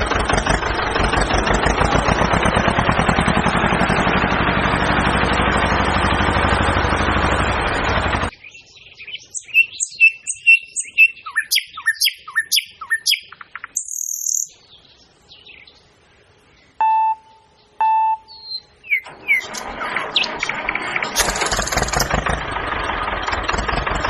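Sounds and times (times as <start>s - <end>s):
small tractor engine running: 0.0s - 8.3s, 19.0s - 24.0s
birds chirping: 4.7s - 22.1s
short beeps: 16.8s - 18.6s.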